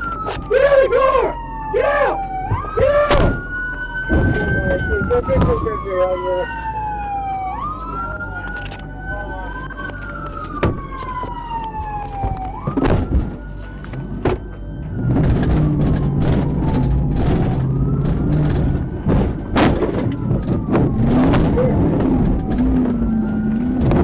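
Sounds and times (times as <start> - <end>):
police siren wailing: 0.0 - 24.0
sharp knocks: 2.5 - 4.6, 17.2 - 22.1
car engine running hard: 7.6 - 24.0.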